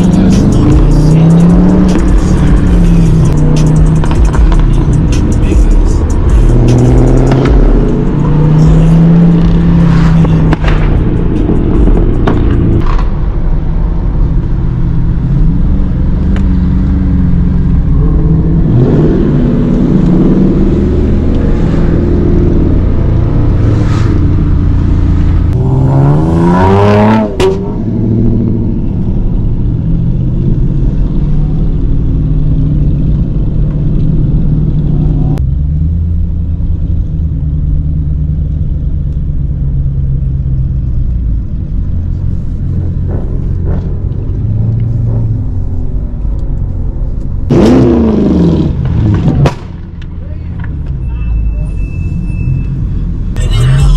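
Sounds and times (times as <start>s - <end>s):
car engine revving and idling: 0.0s - 51.1s, 52.5s - 53.9s.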